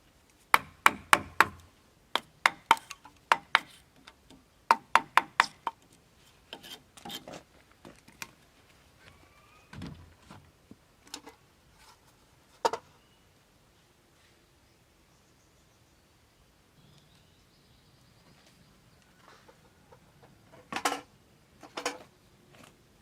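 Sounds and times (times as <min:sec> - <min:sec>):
hand tool striking wood: 0:00.5 - 0:03.8, 0:04.7 - 0:05.8.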